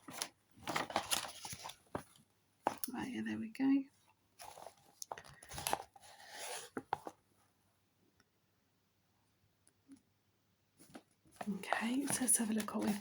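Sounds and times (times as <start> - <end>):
cardboard and paper rustling: 0.0 - 2.9, 4.4 - 7.2, 10.8 - 13.0.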